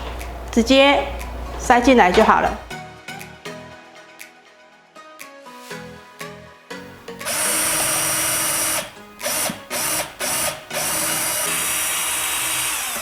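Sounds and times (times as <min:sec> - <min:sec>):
power drill running: 0:07.2 - 0:13.0.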